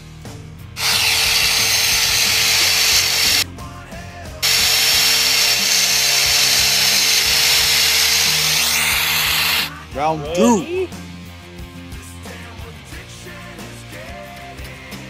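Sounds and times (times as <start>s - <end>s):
welding arc crackling hiss: 0.8s - 3.4s, 4.4s - 9.7s.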